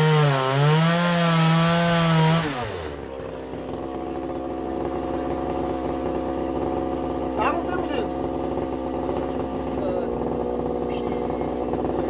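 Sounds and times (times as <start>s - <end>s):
chainsaw cutting wood and idling: 0.0s - 12.0s.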